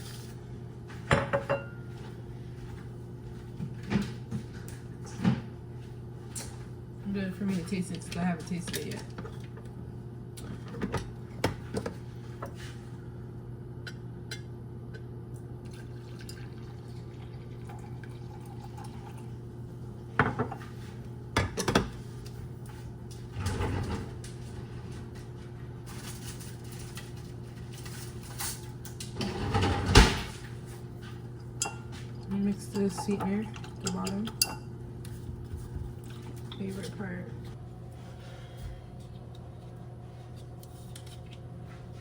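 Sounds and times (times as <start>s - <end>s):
liquid pouring: 15.7s - 19.4s.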